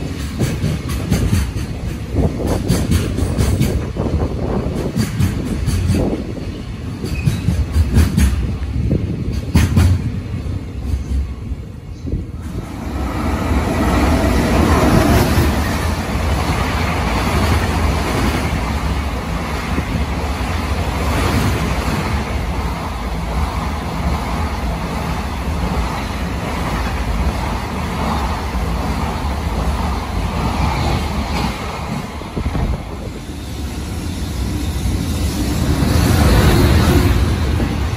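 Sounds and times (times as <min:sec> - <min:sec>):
freight train wheels rumbling and rattling: 0:00.0 - 0:37.9.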